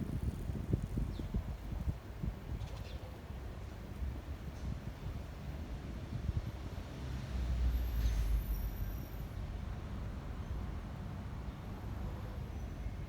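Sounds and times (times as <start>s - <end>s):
wind buffeting microphone: 0.0s - 2.7s.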